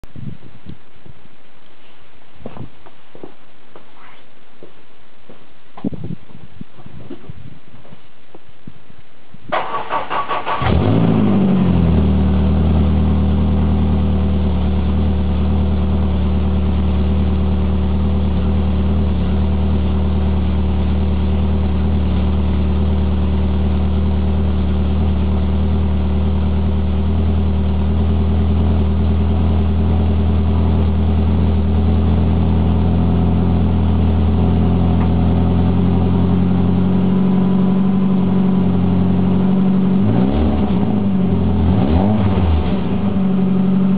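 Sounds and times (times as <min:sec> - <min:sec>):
car engine idling: 0:09.6 - 0:43.9.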